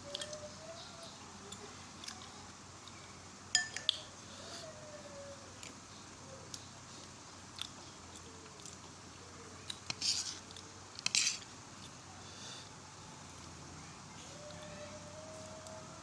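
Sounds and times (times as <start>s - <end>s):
person chewing: 2.0s - 3.0s, 6.5s - 8.9s.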